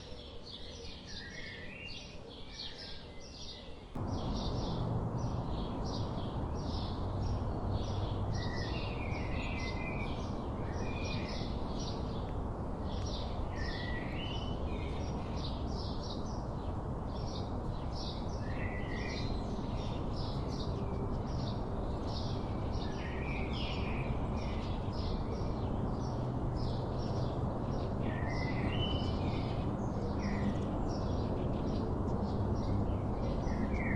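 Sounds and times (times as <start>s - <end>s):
songbirds chirping: 0.0s - 33.9s
steady low rumble: 4.0s - 10.8s.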